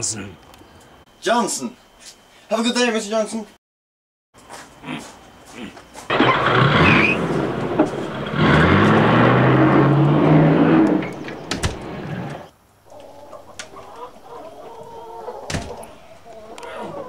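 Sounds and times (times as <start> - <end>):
car engine accelerating: 6.1 - 12.5.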